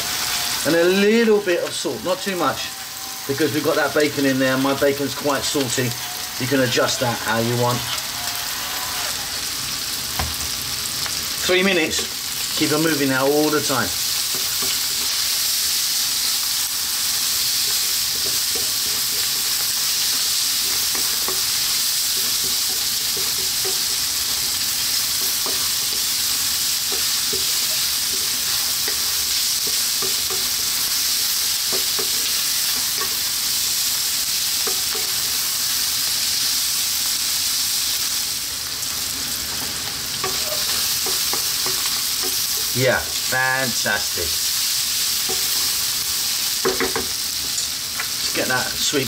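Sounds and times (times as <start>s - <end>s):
food sizzling in a wok: 0.0s - 49.0s
wooden spoon scraping a pan: 17.4s - 33.3s, 39.5s - 42.7s.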